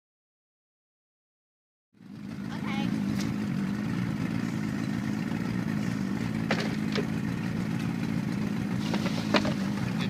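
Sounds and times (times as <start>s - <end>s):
boat motor running: 2.0s - 10.0s.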